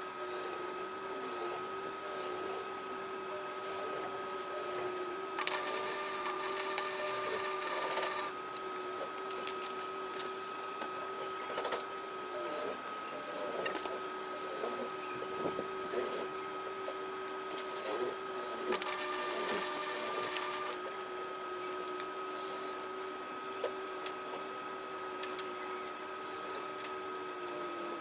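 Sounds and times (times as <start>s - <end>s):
crackling arc welding: 5.4s - 8.3s, 18.7s - 20.8s
welder humming: 5.4s - 8.4s, 18.6s - 20.8s.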